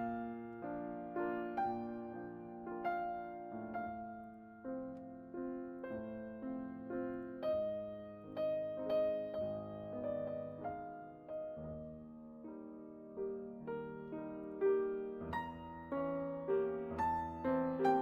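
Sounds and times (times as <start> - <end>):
gentle piano chords: 0.0 - 18.0.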